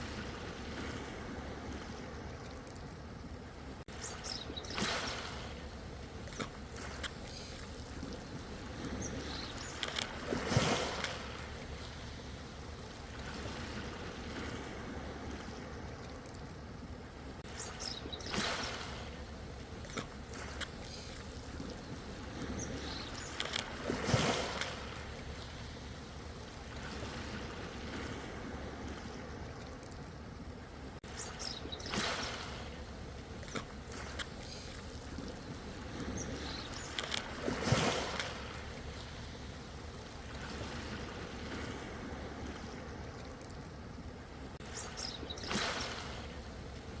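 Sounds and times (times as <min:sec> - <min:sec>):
ocean waves breaking: 0:00.0 - 0:02.6, 0:03.3 - 0:29.8, 0:30.4 - 0:47.0.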